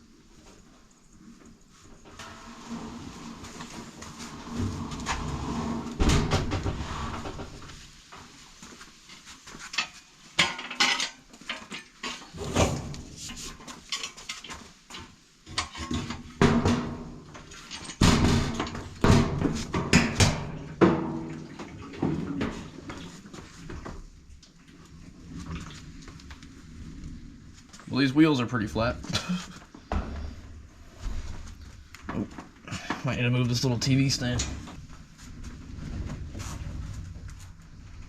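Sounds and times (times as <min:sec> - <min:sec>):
metal objects clanking and rattling: 0:09.8 - 0:22.7.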